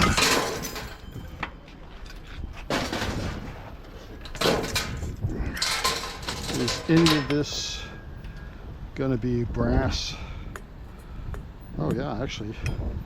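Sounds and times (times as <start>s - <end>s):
scrap metal thrown down: 0.0s - 1.2s, 2.7s - 3.6s, 4.3s - 7.4s.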